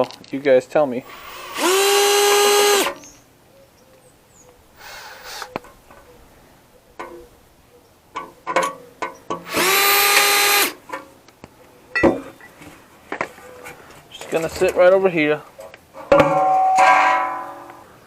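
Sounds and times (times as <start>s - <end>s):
power drill whirring: 1.0s - 3.1s, 4.8s - 5.6s, 9.4s - 10.8s.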